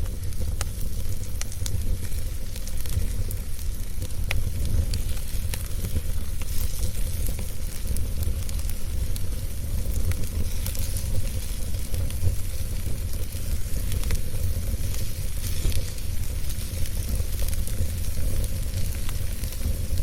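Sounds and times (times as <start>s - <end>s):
fire popping and crackling: 0.0s - 20.0s
wood fire rumbling: 0.0s - 20.0s.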